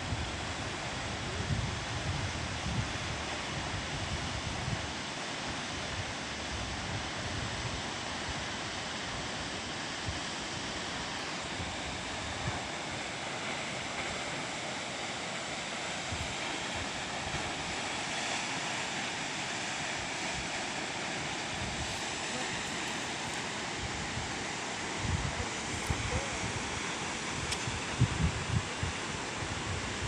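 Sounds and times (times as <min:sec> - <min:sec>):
waterfall rushing: 0:10.9 - 0:27.9
wind buffeting microphone: 0:27.6 - 0:30.0.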